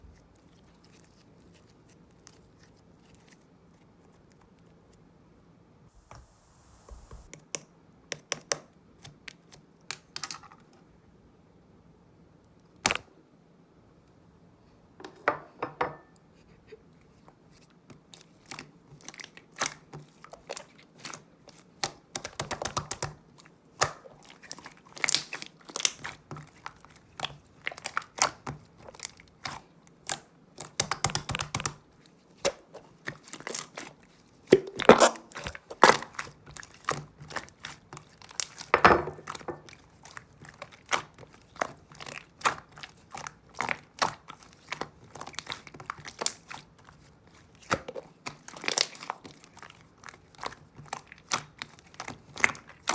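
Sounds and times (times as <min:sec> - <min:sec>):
slime crackling and popping: 0:23.8 - 0:31.8, 0:34.7 - 0:52.9.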